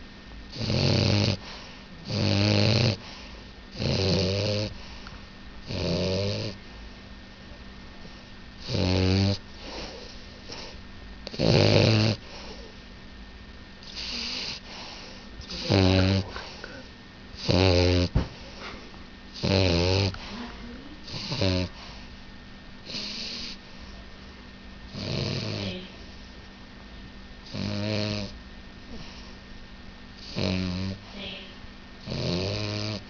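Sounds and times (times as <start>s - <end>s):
puppy snoring: 0.5s - 5.0s, 5.6s - 6.6s, 8.6s - 12.8s, 13.8s - 22.1s, 22.8s - 23.6s, 24.9s - 26.1s, 27.4s - 29.4s, 30.2s - 33.0s.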